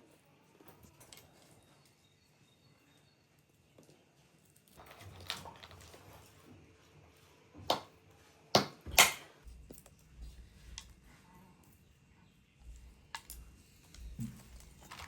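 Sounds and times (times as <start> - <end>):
rustling handling noise: 12.6 - 15.0.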